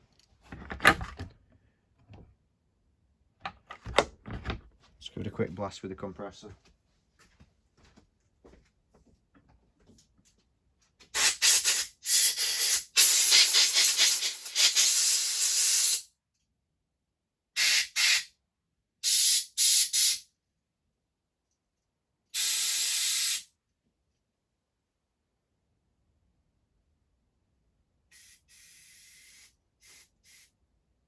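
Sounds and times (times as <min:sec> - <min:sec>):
air blow gun hissing blasts: 0:11.2 - 0:16.0, 0:22.4 - 0:23.5, 0:28.1 - 0:30.5.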